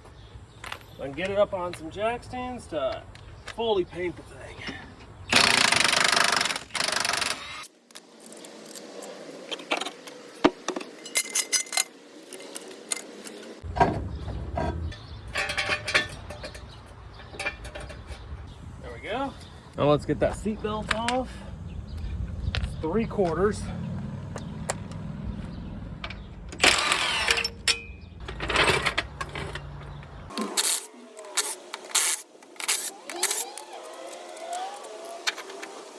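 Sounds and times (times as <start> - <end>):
power tool bursts: 5.3 - 7.7, 26.2 - 28.8, 30.3 - 35.9
low mechanical hum: 13.6 - 30.8
low noise: 13.7 - 34.5.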